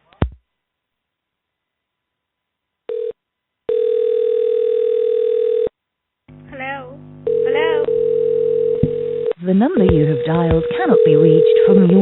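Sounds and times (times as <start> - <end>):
telephone ring tone: 2.9 - 5.7, 7.3 - 9.4, 10.8 - 12.0.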